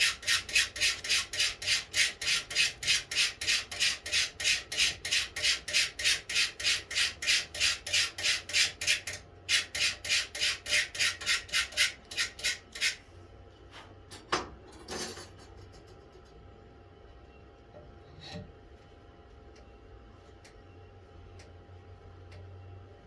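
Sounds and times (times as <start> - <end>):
hand sanding wood: 0.0 - 9.0.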